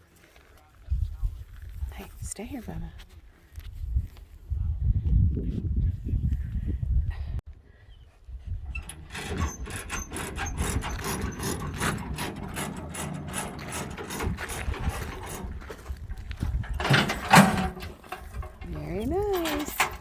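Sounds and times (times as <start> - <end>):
mechanical clicking and clattering: 8.8 - 20.0.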